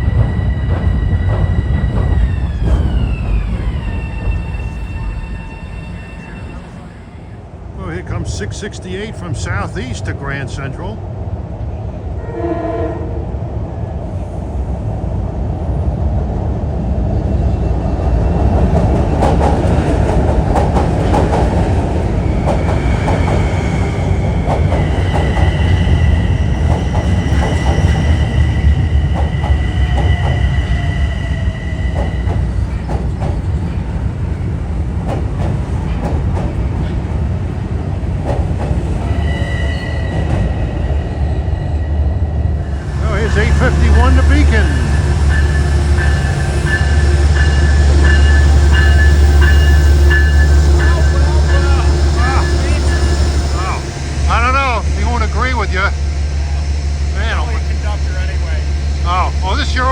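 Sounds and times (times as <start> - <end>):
high steady squeal: 0.0 - 7.4, 21.6 - 34.5, 38.8 - 59.9
train rumbling: 0.0 - 59.9.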